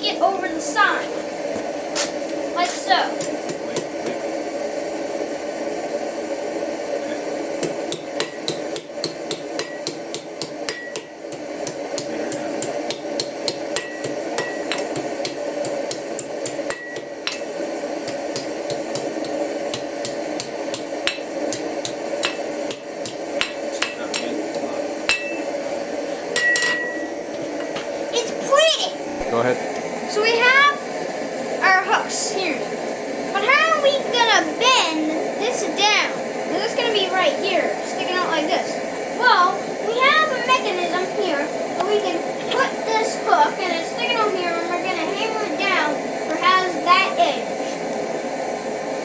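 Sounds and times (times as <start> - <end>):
steady hum: 0.0 - 49.0
hammer striking steel on anvil: 3.2 - 4.2, 7.6 - 25.5, 26.4 - 27.1
metallic ring: 10.7 - 11.2, 16.7 - 17.4, 25.1 - 25.5, 26.4 - 27.1.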